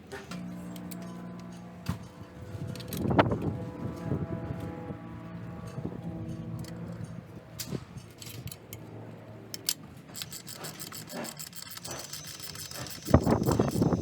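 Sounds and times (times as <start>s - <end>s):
tools scraping: 5.7s - 8.9s, 9.5s - 14.0s
metallic clicks of tools: 6.5s - 8.9s, 9.5s - 14.0s.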